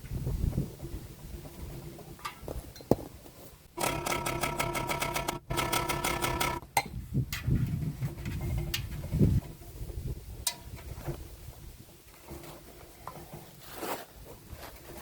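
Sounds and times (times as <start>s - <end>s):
power tool rattling: 3.8s - 6.6s.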